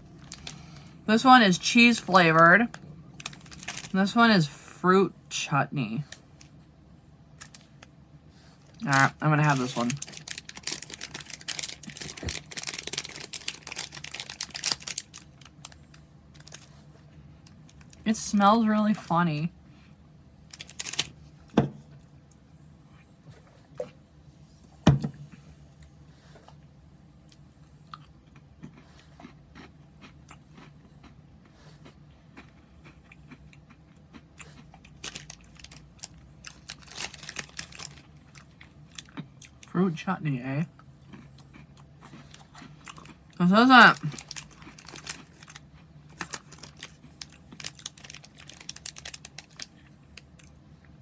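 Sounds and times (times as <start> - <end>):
crunching and chewing cracker: 0.0 - 1.0, 2.6 - 4.0, 7.4 - 18.0, 20.4 - 21.4, 25.8 - 39.7, 40.6 - 51.0
plastic snack bag crinkling: 0.0 - 4.2, 7.4 - 7.9, 8.6 - 18.3, 20.5 - 21.4, 34.8 - 39.6, 41.1 - 50.6.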